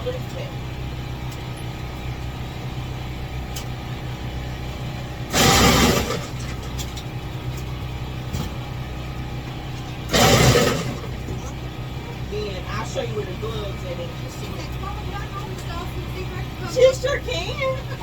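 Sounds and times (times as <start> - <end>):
low engine-like hum: 0.0 - 18.0
ice shaver grinding ice: 5.3 - 6.5, 10.1 - 11.2.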